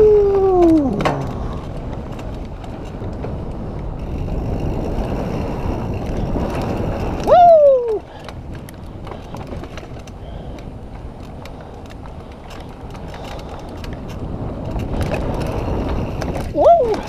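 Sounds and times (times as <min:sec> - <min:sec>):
bike rattles and clicks: 0:00.0 - 0:17.0
bike tyres on dirt: 0:00.0 - 0:17.0
wind: 0:00.0 - 0:17.0
rider shouting woo: 0:07.2 - 0:08.0, 0:16.6 - 0:17.0.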